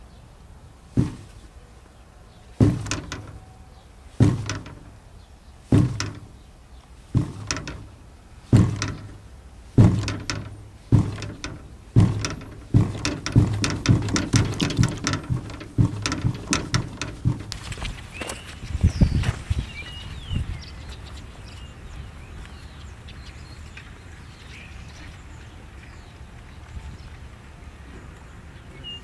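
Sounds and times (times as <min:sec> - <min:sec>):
washing machine knocking: 0:01.0 - 0:01.4, 0:02.6 - 0:03.4, 0:04.2 - 0:05.0, 0:05.7 - 0:06.4, 0:07.2 - 0:17.6.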